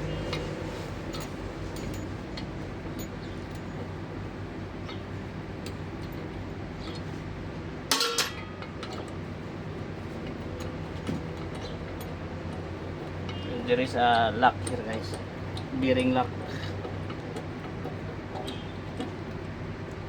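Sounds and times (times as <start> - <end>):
low background hum: 0.0 - 20.0
loud metal clank: 7.9 - 8.6
hand tools clicking on metal: 10.2 - 20.0.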